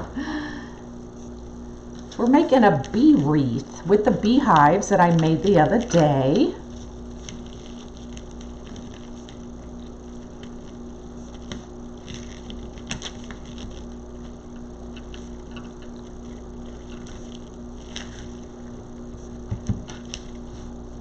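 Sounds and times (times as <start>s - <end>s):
low electrical hum: 0.0s - 21.0s
ribbon rustling and clicking: 4.2s - 18.6s.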